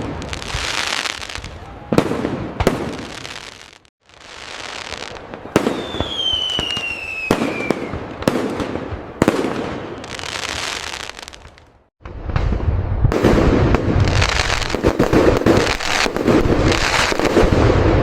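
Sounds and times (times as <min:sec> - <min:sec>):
fireworks bangs: 0:00.0 - 0:18.0
fireworks crackling: 0:00.0 - 0:18.0
whistling firework shell: 0:05.5 - 0:08.2.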